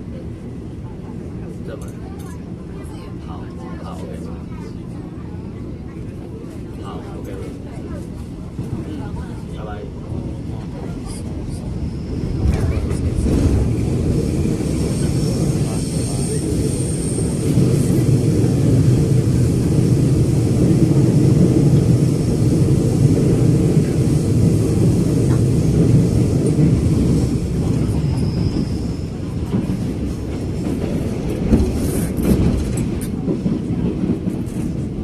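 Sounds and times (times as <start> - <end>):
train wheels rumbling: 10.1 - 35.0.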